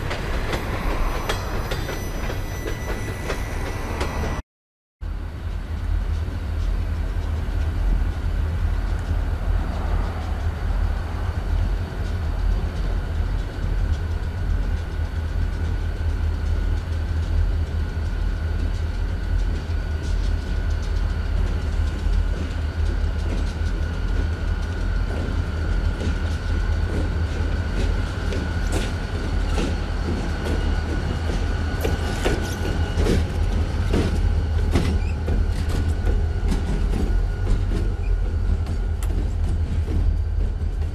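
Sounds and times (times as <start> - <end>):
diesel locomotive engine rumble: 0.0 - 4.4, 5.0 - 40.9
wheels clicking over rail joints: 18.6 - 40.9.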